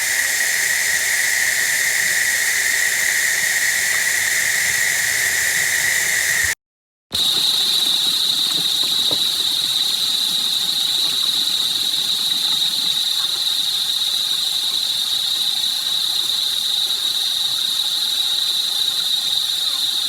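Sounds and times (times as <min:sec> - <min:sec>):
running water hissing: 0:00.0 - 0:06.6, 0:07.2 - 0:15.3.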